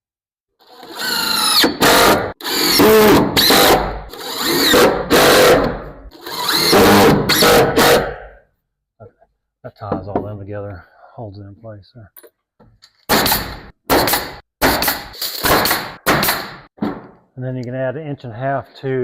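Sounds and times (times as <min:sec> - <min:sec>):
power drill driving screws: 0:00.6 - 0:08.0.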